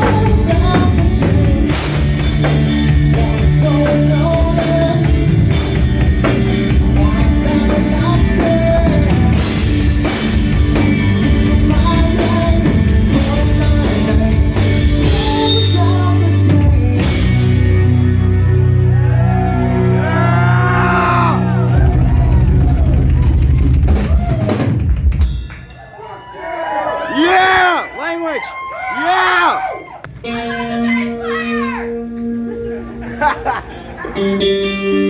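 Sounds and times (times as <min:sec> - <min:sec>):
person singing: 0:00.0 - 0:21.8
electric guitar: 0:00.0 - 0:25.5, 0:30.1 - 0:35.0
bass guitar: 0:00.0 - 0:25.6, 0:30.1 - 0:35.0
drum kit: 0:00.0 - 0:26.0.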